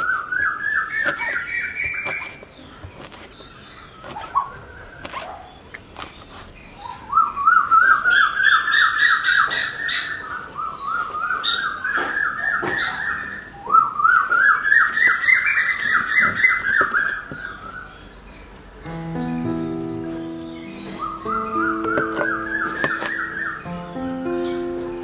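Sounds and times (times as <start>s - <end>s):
bird calling rising notes: 18.9s - 25.0s.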